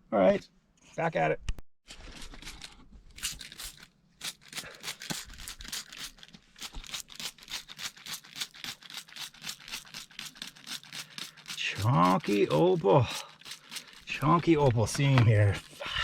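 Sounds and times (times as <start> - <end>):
rock pick scraping and chipping rock: 4.3 - 15.9.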